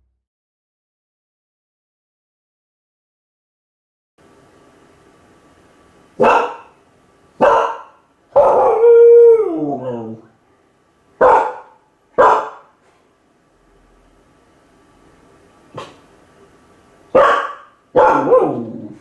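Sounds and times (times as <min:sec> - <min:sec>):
dog barking: 0:06.2 - 0:06.8, 0:07.4 - 0:08.9, 0:11.2 - 0:12.8, 0:15.7 - 0:16.1, 0:17.1 - 0:19.0
dog howling: 0:07.4 - 0:10.3, 0:17.2 - 0:19.0.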